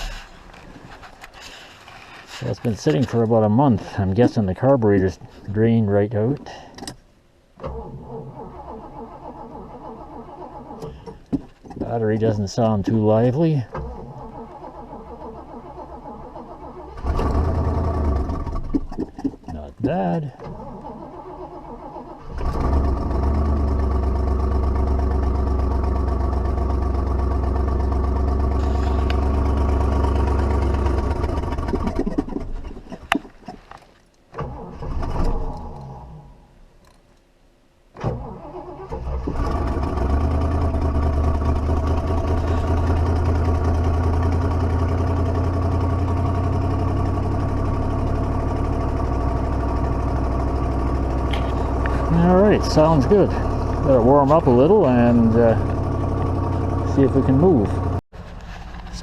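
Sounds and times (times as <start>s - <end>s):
car engine starting and running: 0.0s - 36.7s, 37.8s - 59.0s
engine click: 7.6s - 25.4s, 28.5s - 35.9s, 49.2s - 58.0s.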